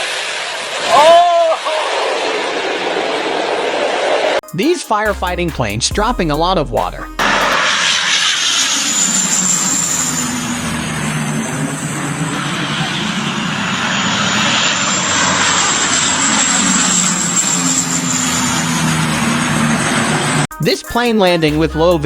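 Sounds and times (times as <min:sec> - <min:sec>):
airplane engines droning: 0:00.0 - 0:04.4, 0:07.2 - 0:20.5
high engine whine: 0:07.2 - 0:20.5.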